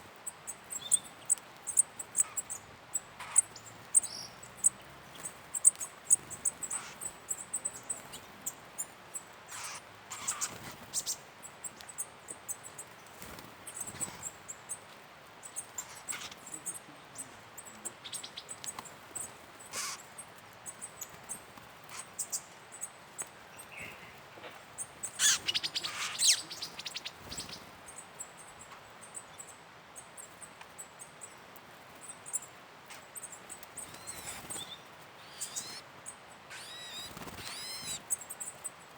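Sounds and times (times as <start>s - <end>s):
birds calling: 0.0s - 8.9s, 9.5s - 11.2s, 15.4s - 29.5s, 33.2s - 38.8s.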